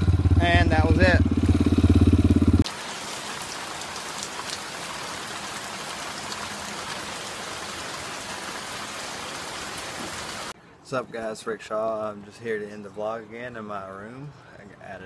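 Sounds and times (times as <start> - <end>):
dirt bike engine running: 0.0 - 2.6
steady rain-like noise: 2.6 - 10.6.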